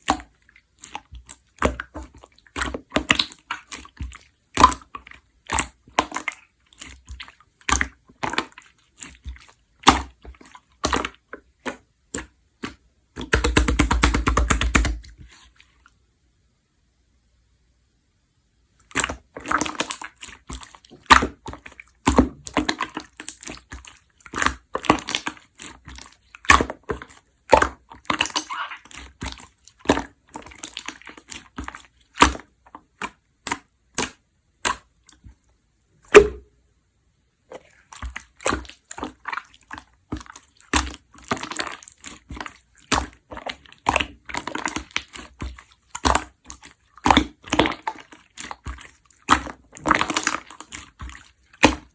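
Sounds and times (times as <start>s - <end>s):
slime clicking and popping: 10.8s - 15.1s, 18.9s - 35.2s, 38.0s - 51.9s.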